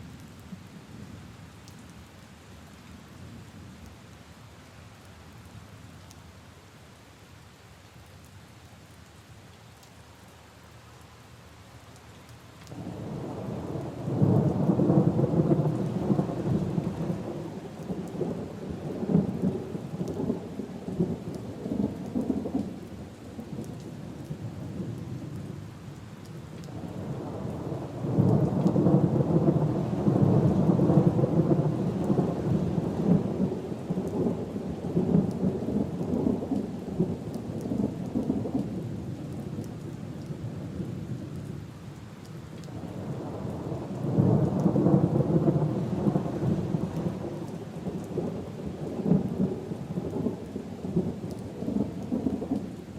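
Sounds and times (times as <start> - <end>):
rain on leaves and puddles: 0.0 - 52.9
thunder rolling: 13.0 - 21.0, 27.0 - 38.6, 43.1 - 52.6.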